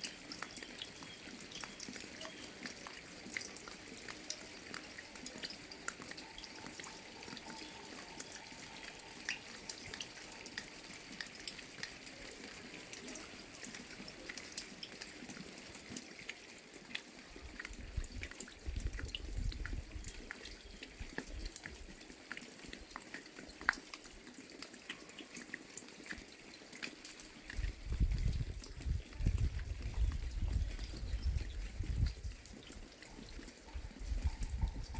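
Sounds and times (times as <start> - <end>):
rain tapping on umbrella: 25.7 - 34.9.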